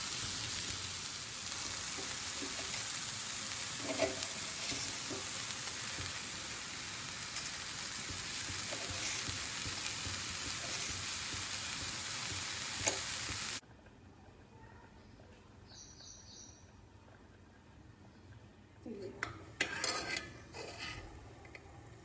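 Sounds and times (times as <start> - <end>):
food sizzling in oil: 0.0 - 13.6, 19.4 - 21.4.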